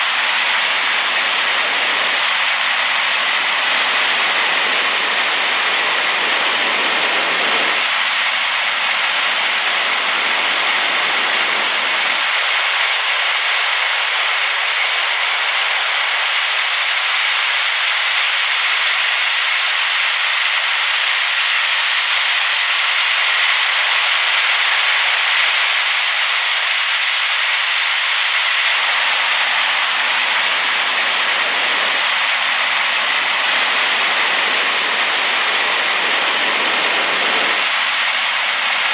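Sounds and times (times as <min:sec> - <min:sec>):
waterfall crashing: 0:00.0 - 0:16.9, 0:28.4 - 0:38.9.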